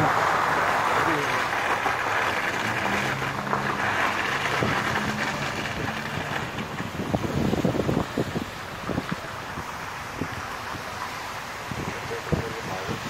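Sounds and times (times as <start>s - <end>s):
vehicle engine running: 0.0s - 9.7s
wind buffeting microphone: 1.4s - 13.0s.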